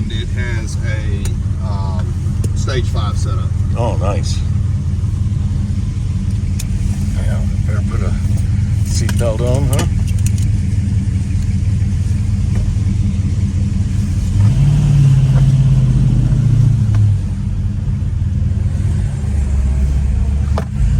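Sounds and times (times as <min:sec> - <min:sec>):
car engine running: 0:00.0 - 0:20.9.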